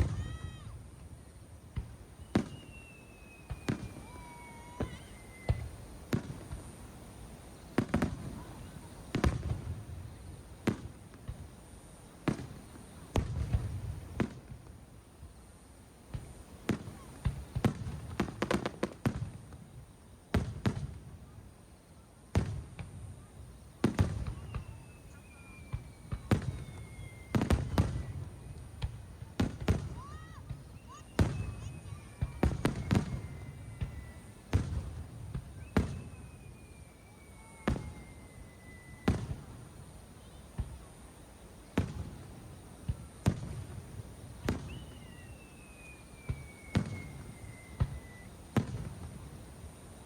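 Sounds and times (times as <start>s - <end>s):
falling firework whistle: 0.0s - 1.1s, 1.7s - 6.6s, 22.4s - 40.8s, 41.6s - 49.4s
fireworks bangs: 0.0s - 15.3s, 16.0s - 21.5s, 22.3s - 50.0s.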